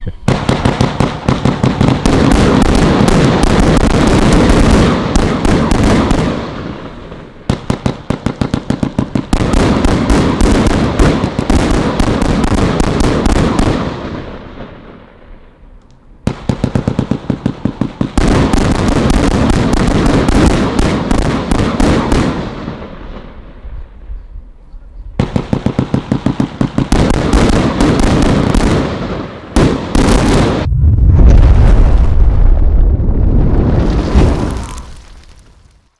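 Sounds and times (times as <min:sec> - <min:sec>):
firework rapid-fire bangs: 0:00.0 - 0:14.9, 0:16.3 - 0:23.3, 0:25.2 - 0:30.7.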